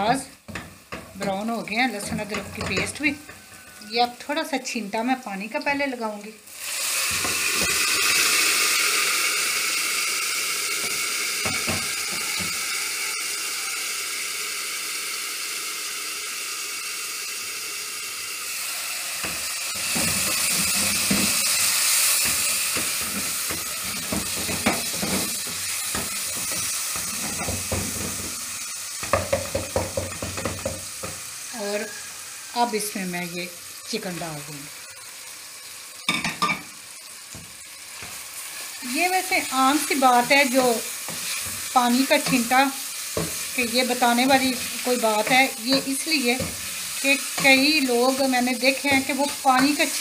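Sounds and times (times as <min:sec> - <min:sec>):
sizzle and hiss of steam: 0:00.0 - 0:50.0
wooden spoon scraping a pot: 0:19.2 - 0:28.4, 0:39.4 - 0:48.2.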